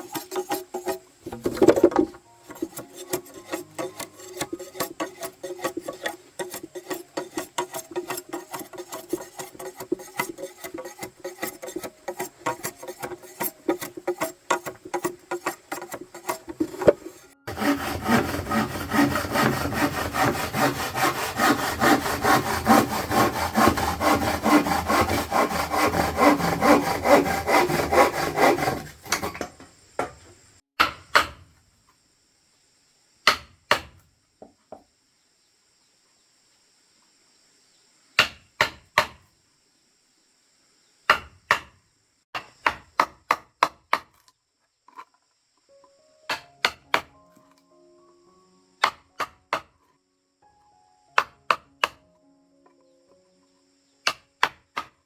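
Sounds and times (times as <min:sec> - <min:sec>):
hand saw rasping wood: 0:00.0 - 0:29.4.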